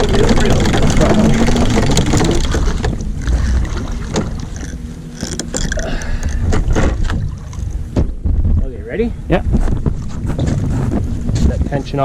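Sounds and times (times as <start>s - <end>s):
sharp clicks and knocks: 0.0s - 3.0s, 4.1s - 5.8s
wind buffeting microphone: 0.0s - 12.0s.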